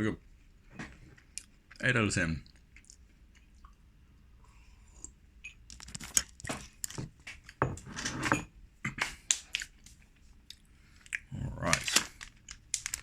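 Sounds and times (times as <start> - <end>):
snack packaging rustling: 9.3 - 13.0.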